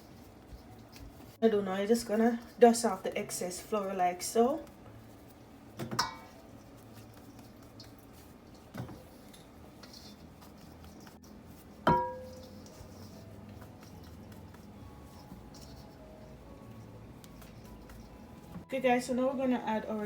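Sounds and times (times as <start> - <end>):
dishware knocking: 11.9 - 12.4.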